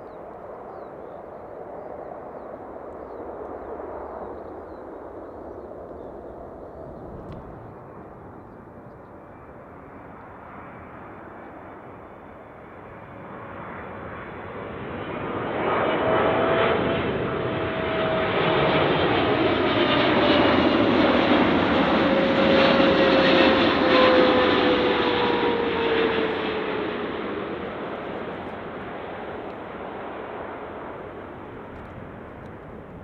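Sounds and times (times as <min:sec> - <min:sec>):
jet airliner passing overhead: 0:00.0 - 0:33.0.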